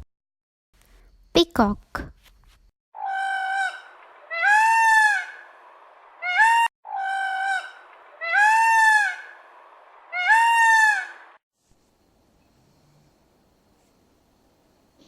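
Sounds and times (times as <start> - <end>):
peacock calling: 3.0 - 11.4.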